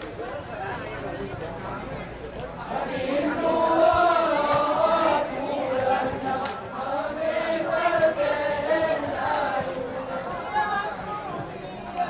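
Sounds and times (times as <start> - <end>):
men chanting in unison: 2.6 - 11.1.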